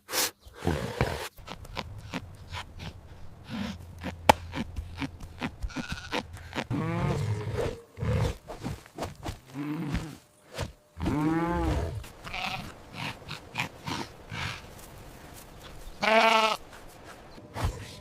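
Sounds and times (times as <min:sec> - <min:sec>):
farm animal calls: 0:00.5 - 0:08.3, 0:11.0 - 0:17.2.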